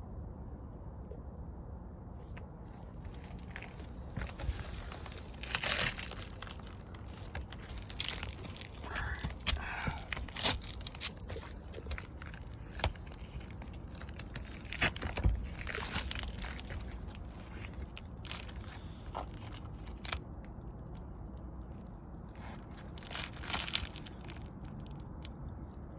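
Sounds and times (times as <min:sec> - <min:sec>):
roof shingles scraping and crunching: 0:03.0 - 0:20.2, 0:22.4 - 0:24.5.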